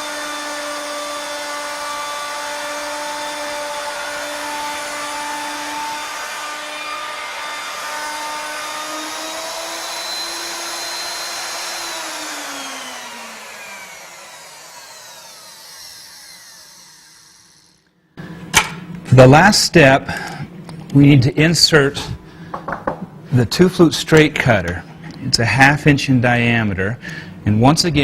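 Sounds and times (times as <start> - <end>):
router winding down: 0.0 - 17.9
router spindle whining: 0.0 - 18.0.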